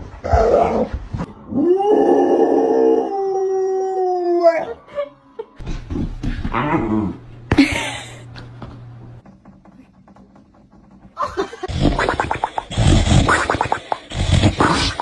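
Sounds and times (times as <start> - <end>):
dog howling: 1.3 - 5.6.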